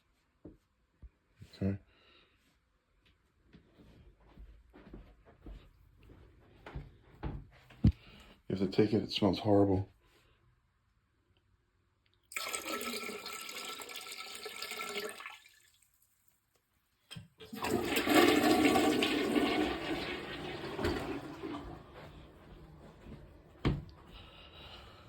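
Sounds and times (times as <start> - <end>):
water pouring and splashing: 12.3 - 16.0, 17.4 - 22.3.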